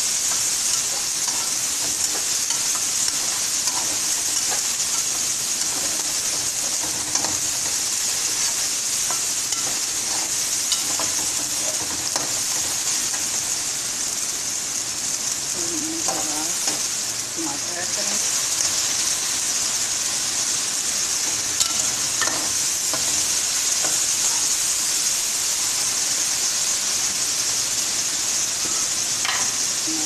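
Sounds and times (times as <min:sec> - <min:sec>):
metal spatula scraping wok: 0:00.0 - 0:13.5
chicken sizzling in hot oil: 0:00.0 - 0:30.0.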